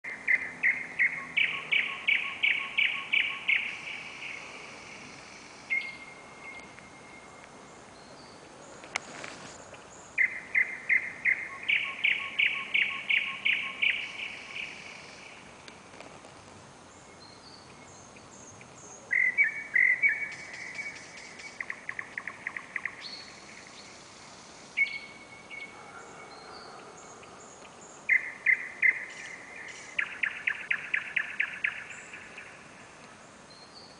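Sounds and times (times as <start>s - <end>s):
nightingale singing: 0.0s - 15.5s, 16.9s - 33.9s.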